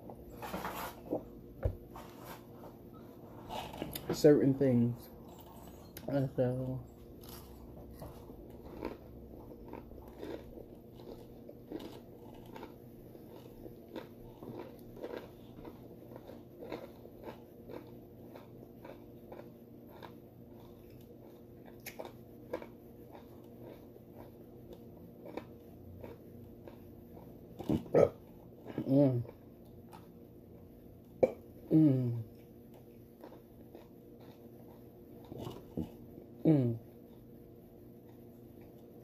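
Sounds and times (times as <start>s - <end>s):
faint steady hum: 0.0s - 39.0s
person chewing with wet smacks: 7.0s - 31.5s, 32.1s - 36.2s.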